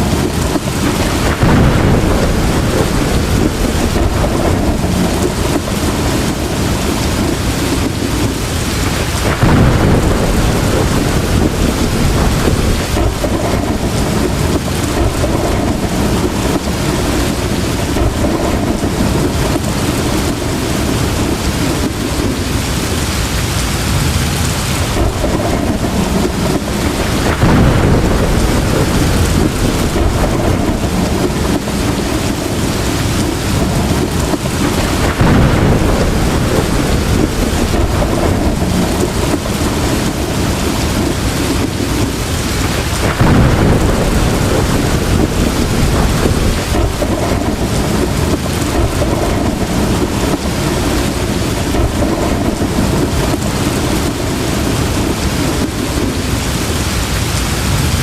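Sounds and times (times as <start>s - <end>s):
heavy rain: 0.0s - 58.0s
rolling thunder: 0.0s - 58.0s.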